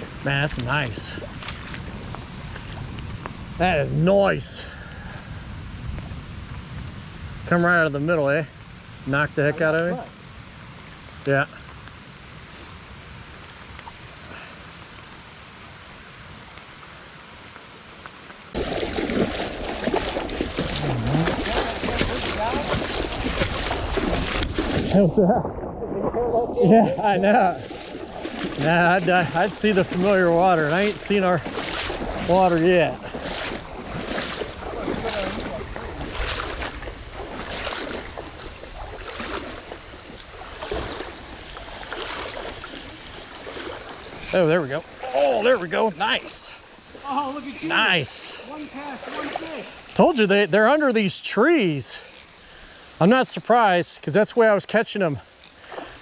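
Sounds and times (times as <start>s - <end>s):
wind on microphone: 0.0s - 7.7s, 18.6s - 44.3s
rough rushing noise with crackles: 0.0s - 50.8s
rain and creek water hiss: 0.0s - 56.0s.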